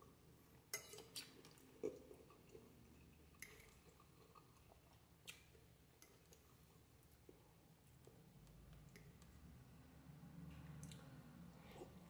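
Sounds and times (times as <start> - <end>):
faint chewing: 0.4 - 9.5, 10.4 - 12.0
wet mouth clicks and smacks: 3.3 - 6.5, 8.0 - 9.5.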